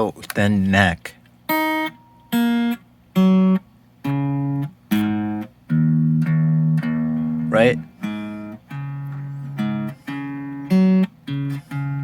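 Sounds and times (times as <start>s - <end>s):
electric guitar notes: 1.5s - 12.0s.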